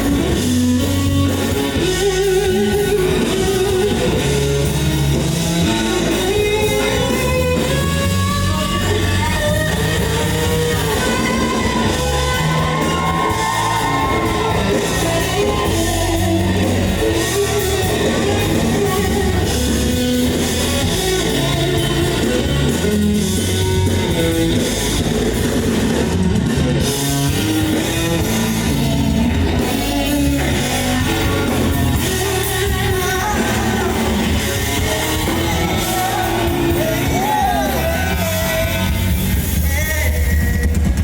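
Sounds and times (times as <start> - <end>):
person singing: 0.0 - 24.8, 27.0 - 41.0
live band playing: 0.0 - 41.0.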